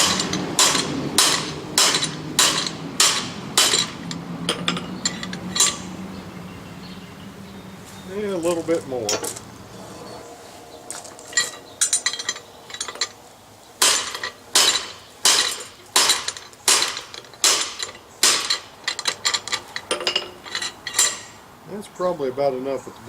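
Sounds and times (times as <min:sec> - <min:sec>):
hammer striking hot steel: 0:00.0 - 0:05.9, 0:13.8 - 0:19.2.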